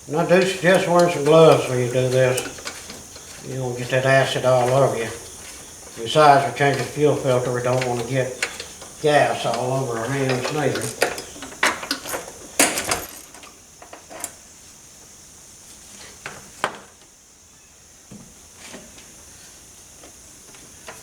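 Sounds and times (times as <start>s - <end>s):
hand tools clinking on metal: 0.0s - 13.6s.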